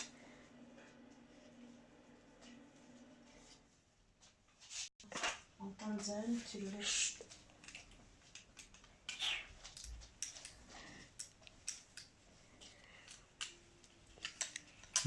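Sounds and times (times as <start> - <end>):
plastic parts clicking: 12.8 - 15.0.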